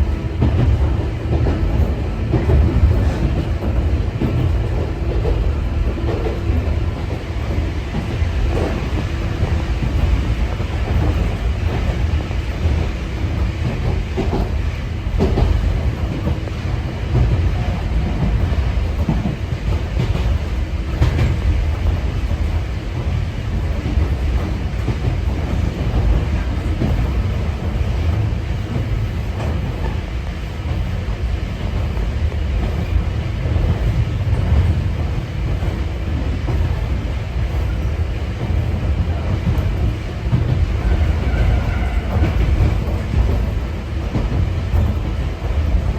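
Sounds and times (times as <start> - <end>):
train wheels rumbling on rail: 0.0 - 45.9
wheels knocking on rail joints: 0.0 - 45.9.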